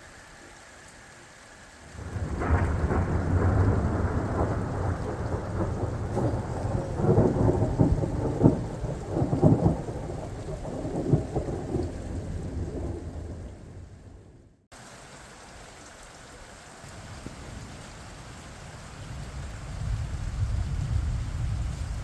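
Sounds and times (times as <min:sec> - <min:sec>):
steady rain: 0:00.0 - 0:22.0
thunder rumbling: 0:01.9 - 0:14.7, 0:16.9 - 0:22.0
sharp thunder cracks: 0:02.0 - 0:14.5.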